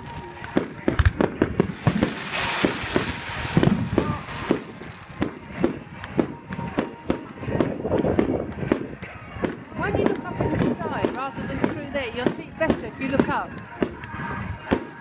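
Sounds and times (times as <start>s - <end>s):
fireworks hissing: 0.0s - 5.7s
fireworks bangs and crackles: 0.0s - 15.0s.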